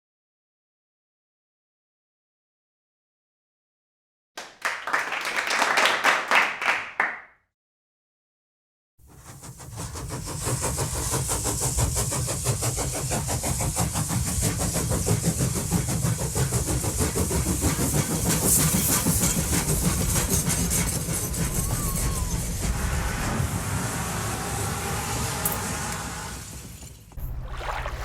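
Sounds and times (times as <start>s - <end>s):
train rumbling and rattling: 9.1s - 27.2s.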